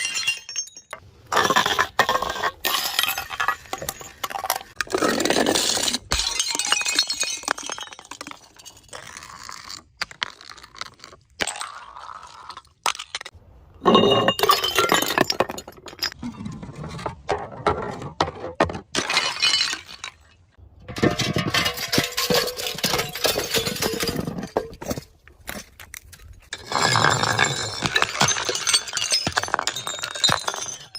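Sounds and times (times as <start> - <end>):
glass bottles shattering: 0.0 - 1.0, 2.6 - 4.8, 5.6 - 9.0, 13.8 - 16.2, 18.9 - 25.0, 26.5 - 30.9
glass shards clinking: 20.9 - 24.8.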